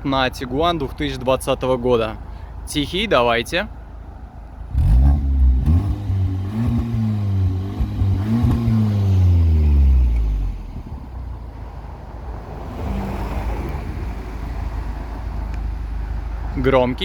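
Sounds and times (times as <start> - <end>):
car engine revving and idling: 3.9 - 16.7.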